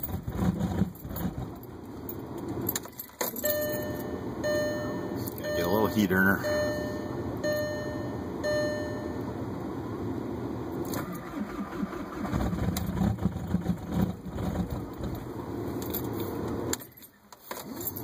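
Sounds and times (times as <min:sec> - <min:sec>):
diesel car engine running: 0:00.0 - 0:18.0
short beep: 0:03.4 - 0:09.3.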